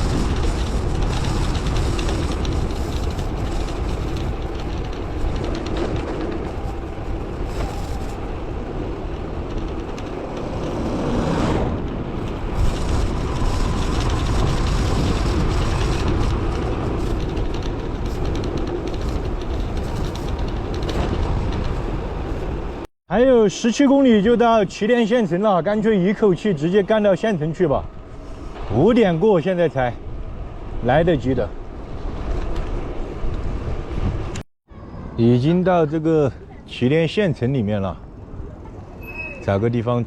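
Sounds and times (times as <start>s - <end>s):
wind buffeting microphone: 0.0s - 22.9s, 27.8s - 34.4s.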